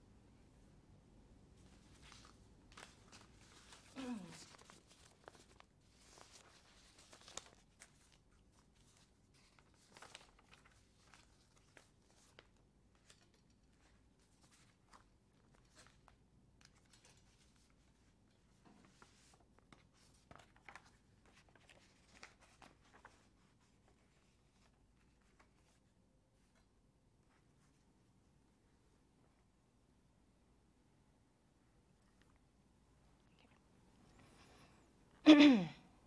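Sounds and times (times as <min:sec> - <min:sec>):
faint clicks and rustles: 0:01.6 - 0:29.8.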